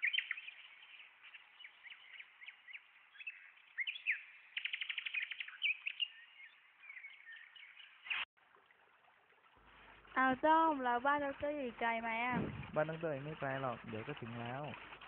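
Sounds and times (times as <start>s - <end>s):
bird trill: 0.0s - 8.2s
songbirds chirping: 0.0s - 8.3s.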